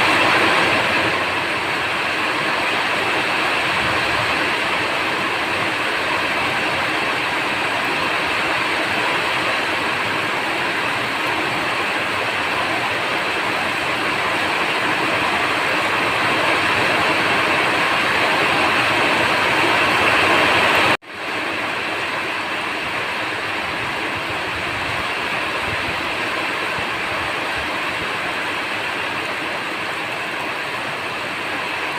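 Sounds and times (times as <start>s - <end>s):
steady rain hiss: 0.0s - 31.9s.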